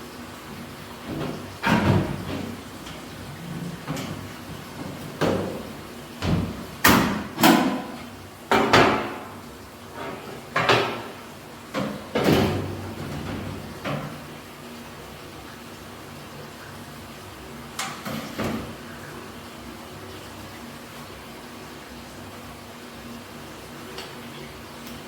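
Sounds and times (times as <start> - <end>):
knocks and clunks of dryer parts: 1.0 - 14.3, 17.8 - 18.8.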